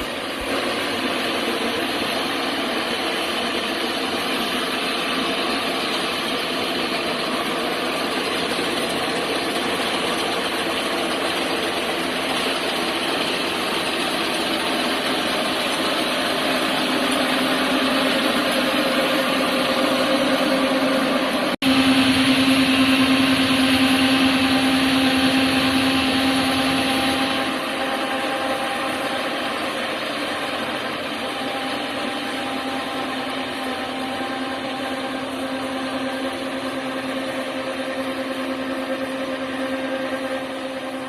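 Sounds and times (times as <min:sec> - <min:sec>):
combine harvester running: 0:00.0 - 0:41.0
humming tone: 0:17.1 - 0:41.0.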